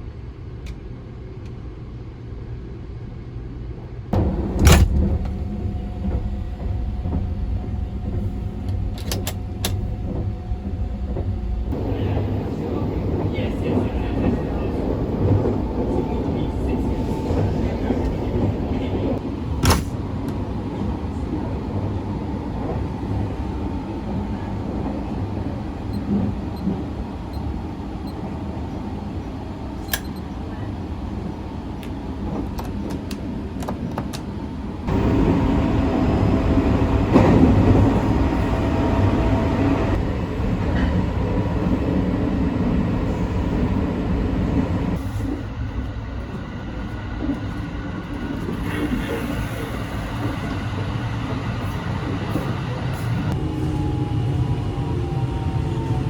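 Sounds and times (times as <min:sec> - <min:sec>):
train rumbling on rails: 0:00.0 - 0:56.0.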